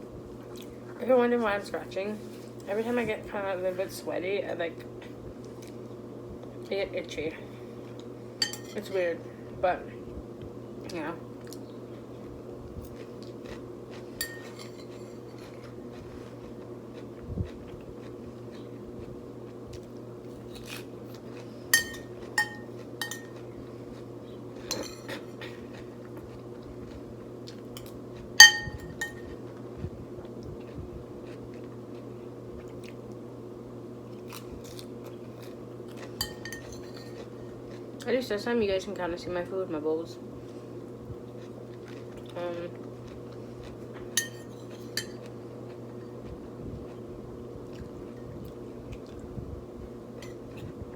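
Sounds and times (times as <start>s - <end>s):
steady low hum: 0.0s - 50.9s
cutlery clinking against bowl: 8.4s - 9.0s, 14.2s - 15.5s, 21.7s - 23.4s, 24.7s - 25.3s, 27.8s - 29.4s, 36.2s - 37.3s, 44.2s - 45.3s.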